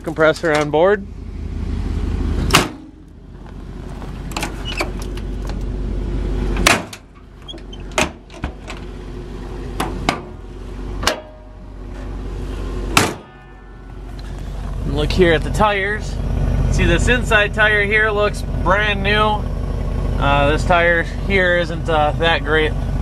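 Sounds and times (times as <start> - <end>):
metal doors and latches clunking: 0.0 - 0.9, 2.4 - 3.0, 3.9 - 5.6, 6.5 - 8.9, 9.7 - 10.4, 11.0 - 12.1
steady low rumble: 0.0 - 23.0.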